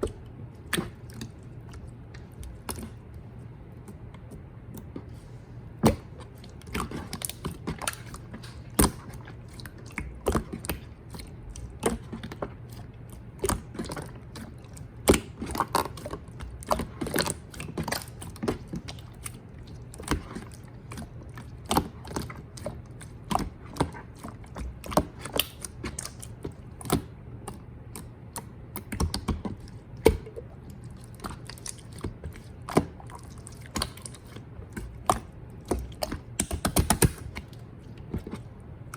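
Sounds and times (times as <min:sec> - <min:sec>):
steady low hum: 0:00.0 - 0:38.9
slime squished by hand: 0:03.8 - 0:38.9.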